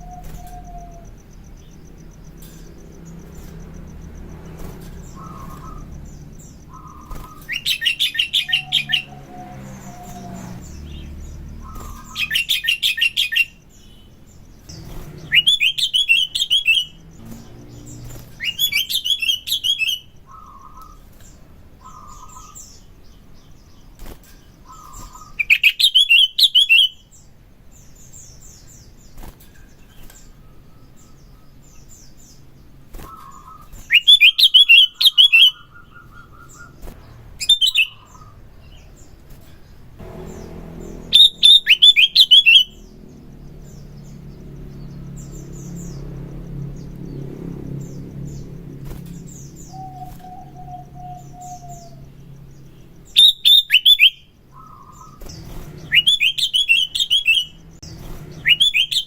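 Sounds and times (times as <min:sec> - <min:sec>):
bird trilling chatter: 0:00.0 - 0:21.1, 0:21.8 - 0:22.9, 0:40.0 - 0:46.9
bird call notes: 0:00.0 - 0:21.2, 0:24.5 - 0:27.1, 0:33.0 - 0:36.8, 0:37.4 - 0:38.9, 0:40.0 - 0:47.0, 0:48.0 - 0:59.0.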